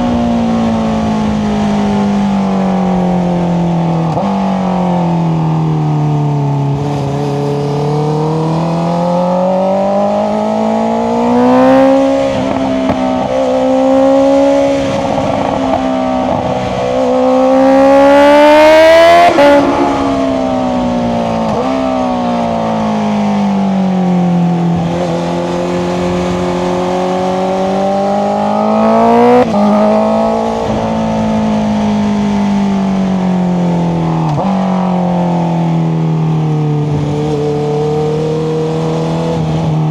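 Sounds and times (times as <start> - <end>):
motorcycle engine revving: 6.4 - 34.9.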